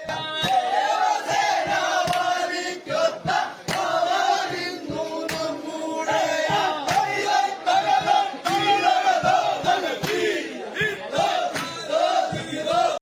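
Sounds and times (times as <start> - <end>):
men chanting and shouting: 0.0 - 13.0
sharp rhythmic knocks: 0.0 - 13.0.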